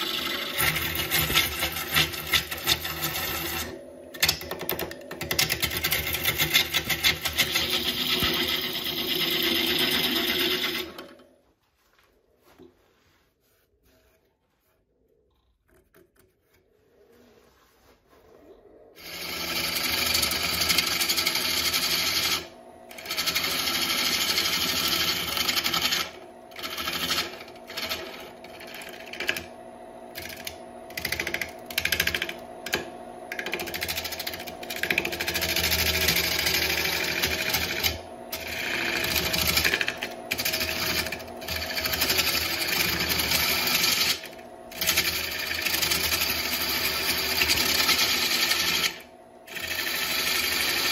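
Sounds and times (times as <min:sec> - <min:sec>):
lathe tool scraping wood: 0:00.0 - 0:11.4, 0:16.2 - 0:50.9
low motor hum: 0:00.0 - 0:11.5.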